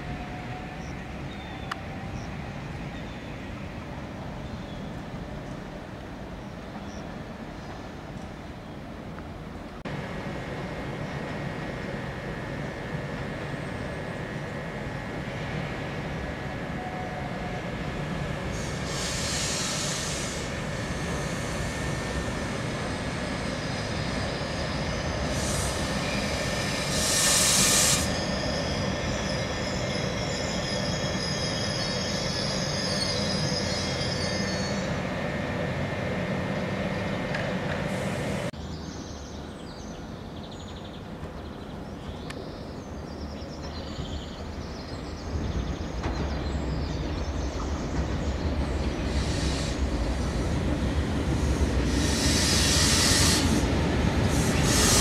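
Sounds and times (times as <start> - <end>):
train wheels rumbling on rail: 0.0 - 38.6, 43.1 - 55.0
distant train approaching: 0.0 - 55.0.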